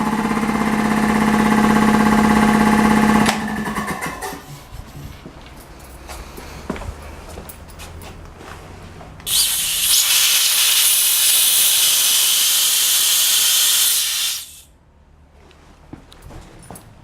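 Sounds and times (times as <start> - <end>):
compressed air hissing: 9.3 - 14.7.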